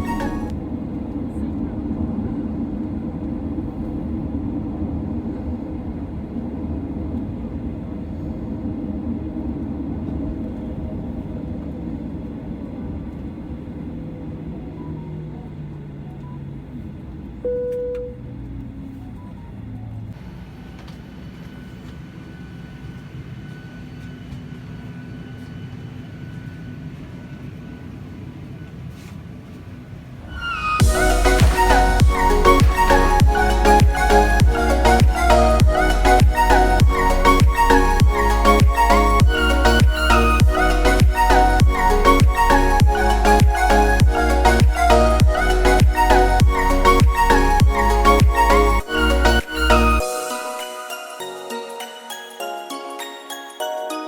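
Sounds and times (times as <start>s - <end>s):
single tone: 17.4s - 18.3s
jet engines winding down: 20.2s - 28.6s, 29.9s - 51.2s.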